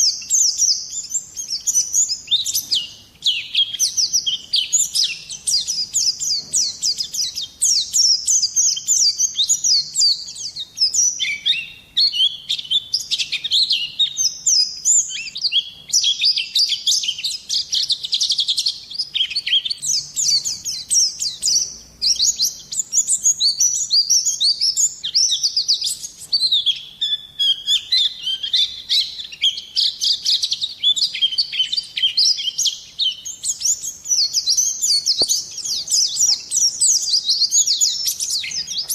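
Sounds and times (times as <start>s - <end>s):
bird twittering song: 0.0s - 38.9s.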